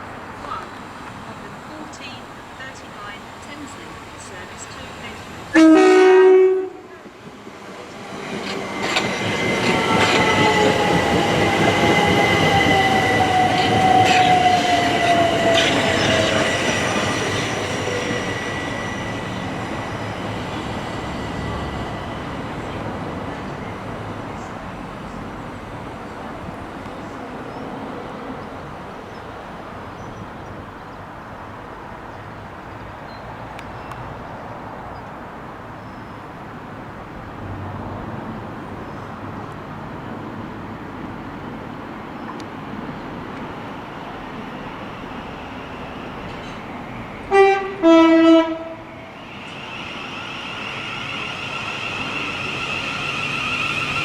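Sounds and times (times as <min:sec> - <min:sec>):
electric train passing: 0:00.0 - 0:54.0
high wheel squeal: 0:08.4 - 0:24.1, 0:44.8 - 0:54.0.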